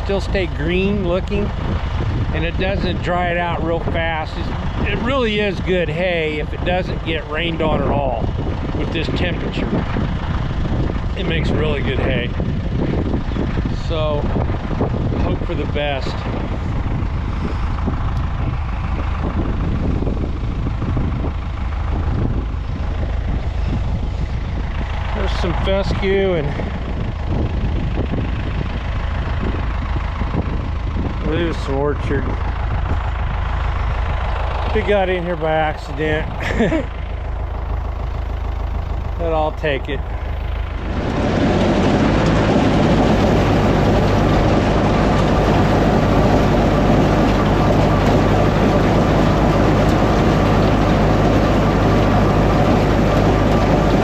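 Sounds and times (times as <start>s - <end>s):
mower rattling: 0.0s - 54.0s
tractor engine running: 0.0s - 54.0s.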